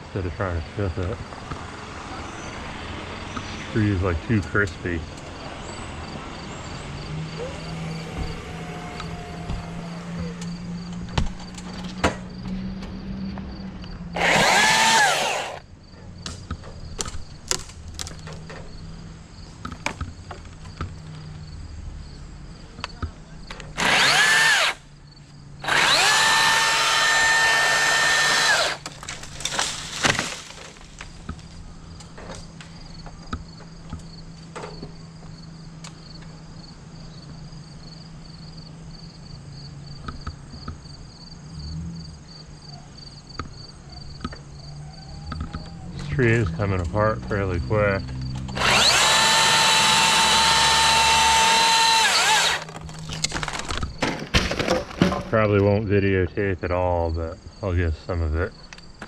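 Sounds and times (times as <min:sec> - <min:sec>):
insects chirping: 0:00.1 - 0:54.2, 0:54.9 - 0:59.0
power saw cutting branches: 0:07.2 - 0:12.0, 0:14.2 - 0:15.7, 0:23.7 - 0:24.8, 0:25.6 - 0:31.2, 0:46.1 - 0:55.2.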